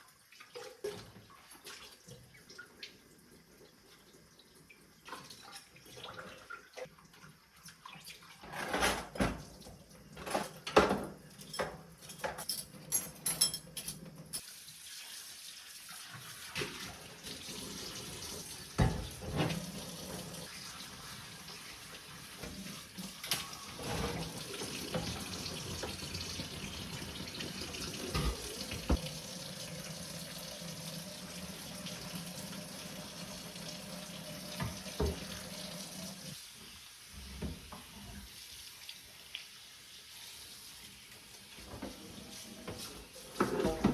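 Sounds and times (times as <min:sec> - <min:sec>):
dishes knocking and clinking: 0:10.2 - 0:14.2, 0:28.0 - 0:29.1
tap water running into sink: 0:14.4 - 0:36.4.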